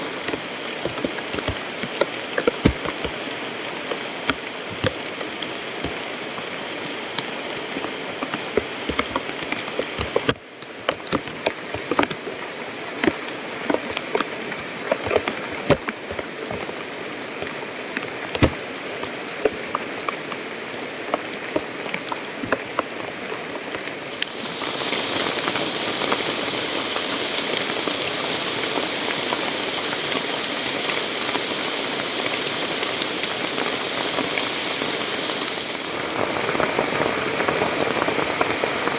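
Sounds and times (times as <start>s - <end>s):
high-pitched hiss: 0.0s - 0.6s, 24.1s - 27.8s, 35.8s - 38.9s
rain falling: 0.0s - 8.8s, 21.8s - 38.9s.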